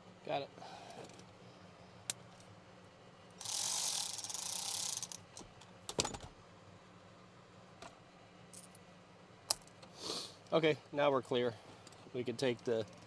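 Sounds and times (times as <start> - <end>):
hand ratchet wrench cranking: 3.4 - 5.2.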